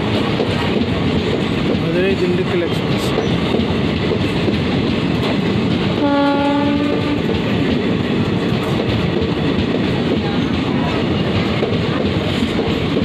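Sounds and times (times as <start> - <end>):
train wheels rushing on rails: 0.0 - 13.0
train horn: 6.0 - 7.3.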